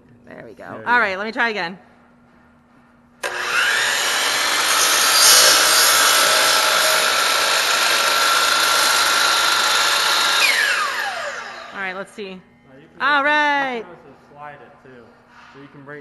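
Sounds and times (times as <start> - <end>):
miter saw cutting wood: 3.2 - 12.0.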